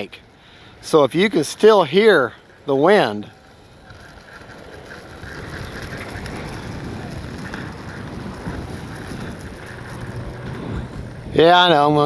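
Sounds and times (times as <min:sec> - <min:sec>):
wind buffeting microphone: 0:02.5 - 0:12.0.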